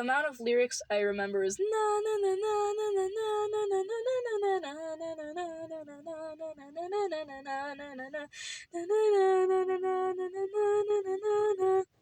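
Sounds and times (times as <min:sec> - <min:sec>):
young person singing: 0:01.3 - 0:12.0.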